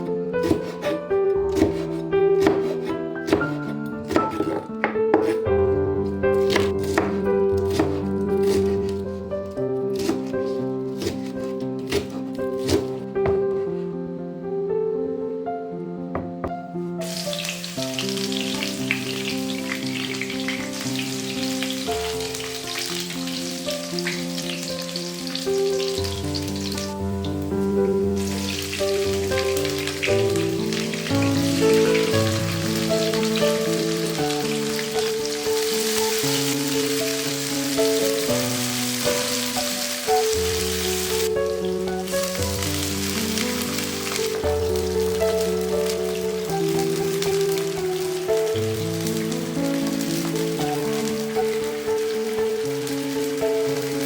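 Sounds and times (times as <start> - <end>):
background music: 0.0 - 54.0
food sizzling in hot oil: 17.0 - 54.0.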